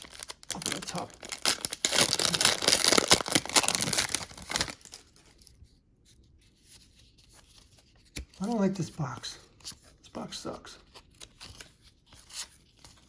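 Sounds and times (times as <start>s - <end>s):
card wrappers tearing and crinkling: 0.0s - 5.4s.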